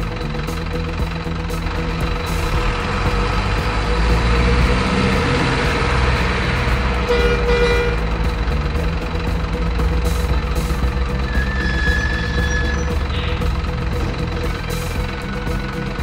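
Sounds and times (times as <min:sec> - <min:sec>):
truck engine droning: 0:00.0 - 0:16.0
truck horn toot: 0:06.9 - 0:08.3, 0:11.2 - 0:13.5.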